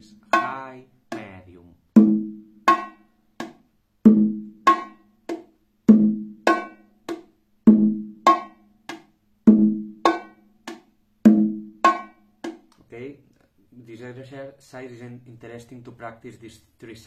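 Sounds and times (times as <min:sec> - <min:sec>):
bongo drum played by hand: 0:00.0 - 0:12.8.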